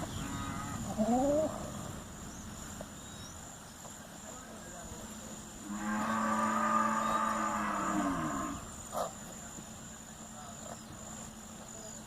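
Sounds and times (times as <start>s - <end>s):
farm animal calling: 0.0s - 1.9s, 5.6s - 9.2s.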